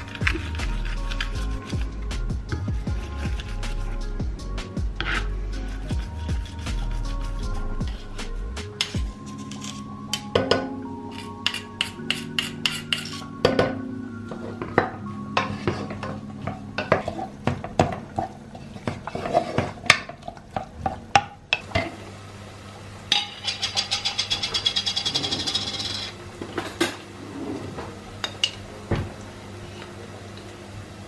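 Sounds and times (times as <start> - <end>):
utensil stirring against dish: 0.0 - 2.2, 2.8 - 4.2, 5.0 - 9.9, 11.1 - 13.3, 15.4 - 21.0, 23.1 - 26.2
dishes and cutlery clinking: 8.8 - 13.8, 14.6 - 21.0, 23.1 - 29.1.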